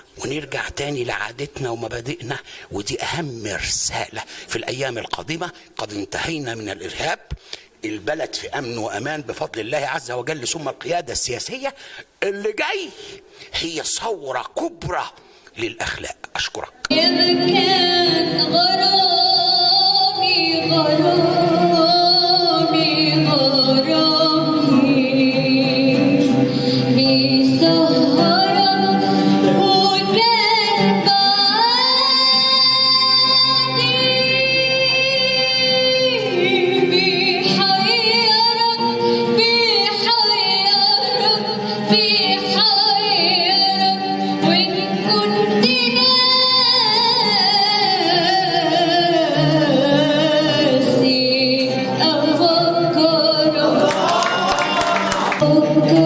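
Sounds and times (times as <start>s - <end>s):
woman singing with vibrato: 16.9s - 56.0s.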